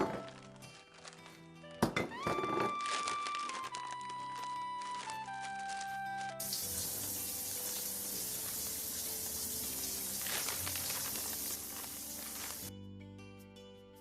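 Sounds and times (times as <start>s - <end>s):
crackling hiss: 6.4s - 12.7s.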